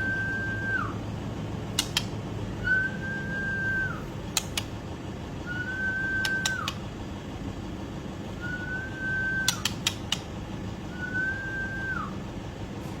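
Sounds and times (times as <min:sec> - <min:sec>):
bird whistling: 0:00.0 - 0:01.0, 0:02.6 - 0:04.6, 0:05.4 - 0:06.8, 0:08.4 - 0:10.2, 0:10.9 - 0:12.2
low background hum: 0:00.0 - 0:13.0
sharp clicks: 0:01.7 - 0:02.2, 0:04.3 - 0:04.8, 0:06.2 - 0:06.8, 0:09.4 - 0:10.4.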